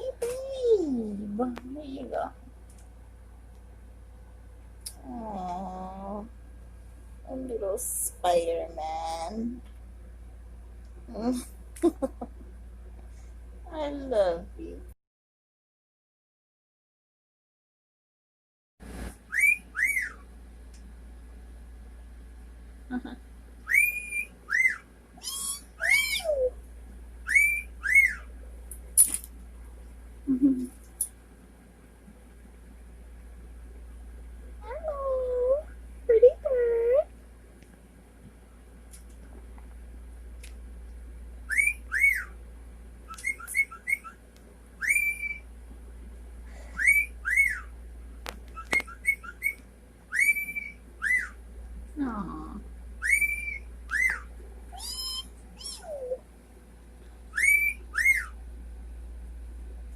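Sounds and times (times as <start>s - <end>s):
parrot whistled chirps: 19.3s - 20.2s, 23.6s - 26.5s, 27.2s - 28.3s, 41.5s - 42.4s, 43.1s - 44.2s, 44.8s - 45.5s, 46.7s - 47.7s, 48.5s - 51.4s, 53.0s - 56.2s, 57.3s - 58.4s.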